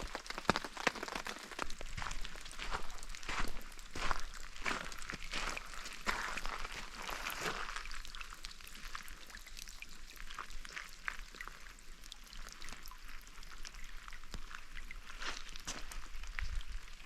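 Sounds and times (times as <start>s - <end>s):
rain falling: 0.0s - 13.3s
raindrops striking: 0.0s - 17.0s.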